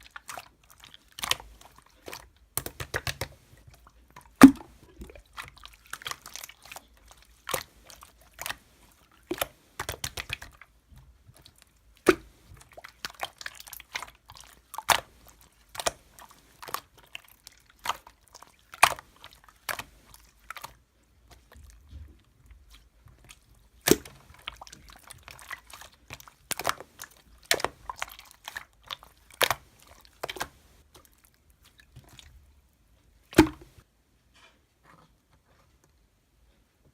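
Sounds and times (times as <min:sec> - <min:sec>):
slime popping and crackling: 0:00.0 - 0:03.4, 0:09.2 - 0:10.7, 0:11.3 - 0:21.6, 0:23.1 - 0:31.2, 0:33.3 - 0:33.8
slime squishing: 0:00.0 - 0:33.9.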